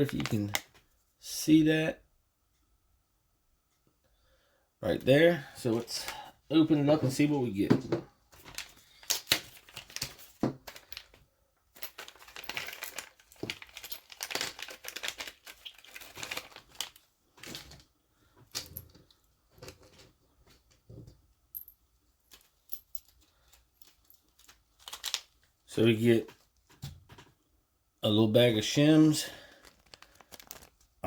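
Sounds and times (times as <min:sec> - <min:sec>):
small metal parts clicking: 0:11.8 - 0:17.0
plastic bag tearing and crinkling: 0:12.1 - 0:17.7, 0:29.5 - 0:31.0.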